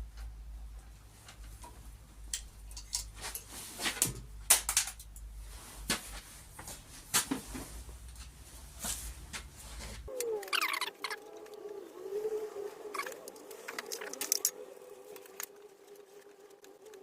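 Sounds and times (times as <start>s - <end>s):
low steady hum: 0.0s - 16.5s
sheet metal and tools clicking: 1.3s - 5.3s, 13.0s - 15.6s.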